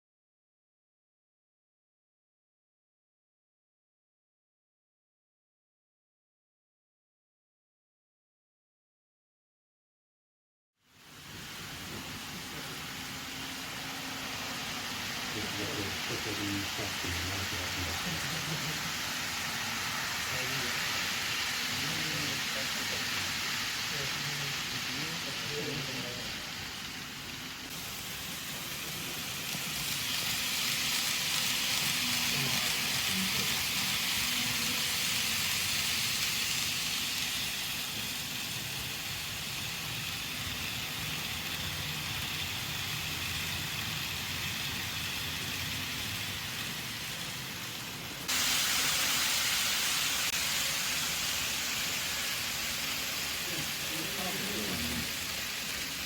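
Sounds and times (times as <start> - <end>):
model train running on track: 11.2 - 56.0.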